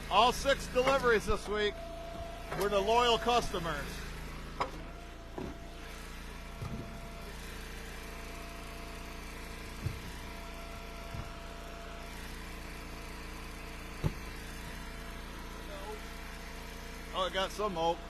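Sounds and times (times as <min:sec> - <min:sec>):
gas engine running: 0:00.0 - 0:18.0.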